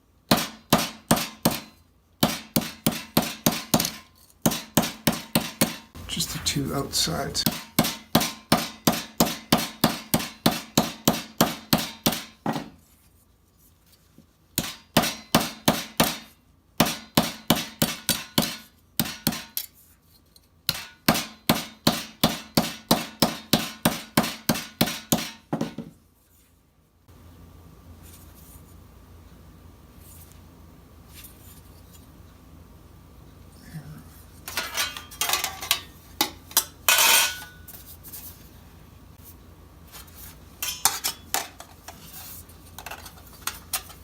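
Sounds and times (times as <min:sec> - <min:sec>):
faint steady hum: 0:05.2 - 0:08.6, 0:25.8 - 0:44.0
hammer striking steel plate: 0:07.4 - 0:12.5, 0:14.6 - 0:19.6.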